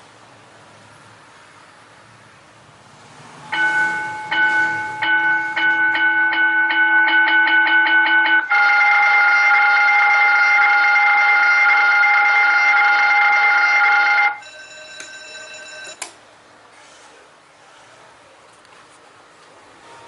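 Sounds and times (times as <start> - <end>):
electronic bell ringing: 3.5 - 16.0.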